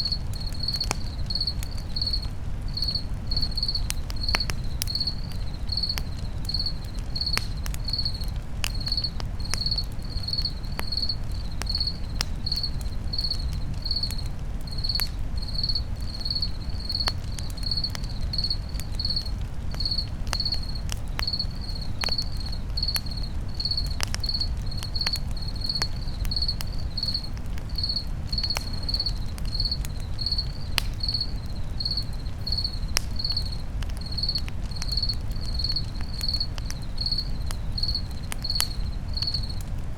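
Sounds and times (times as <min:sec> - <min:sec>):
campfire crackling and popping: 0:00.0 - 0:39.9
crickets chirping: 0:00.0 - 0:39.9.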